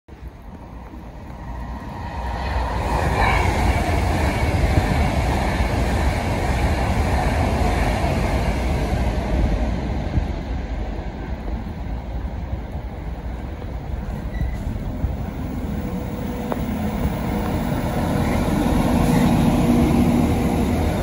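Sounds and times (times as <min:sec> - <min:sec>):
train running rumble: 0:00.2 - 0:21.0.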